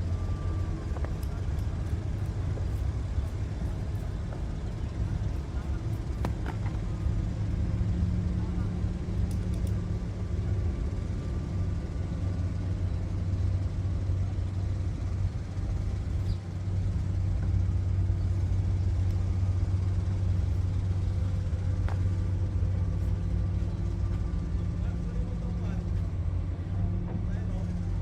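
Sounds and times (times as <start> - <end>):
engine droning: 0.0 - 28.0.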